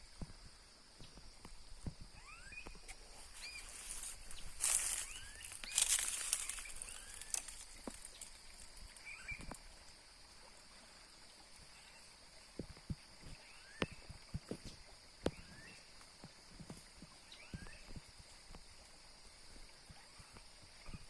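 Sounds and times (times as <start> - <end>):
small bird chirping: 2.1 - 8.4, 9.0 - 9.6.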